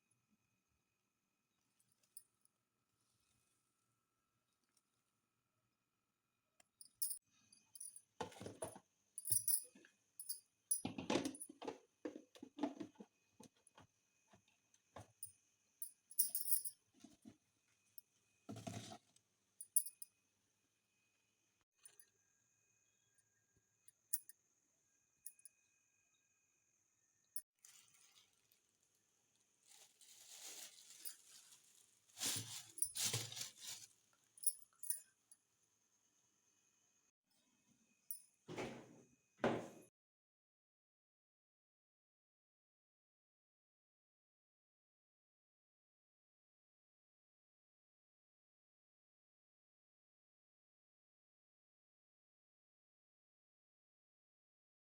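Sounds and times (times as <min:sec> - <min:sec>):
rustling and handling noises: 0:27.6 - 0:35.0.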